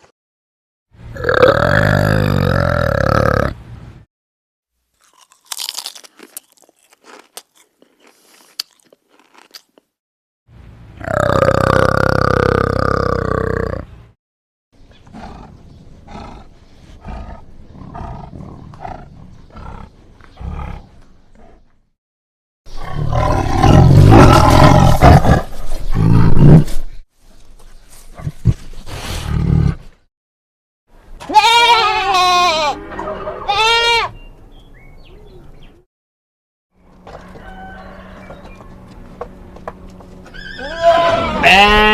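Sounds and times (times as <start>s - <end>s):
sheep bleating: 31.2s - 32.8s, 33.5s - 34.1s, 40.5s - 41.9s.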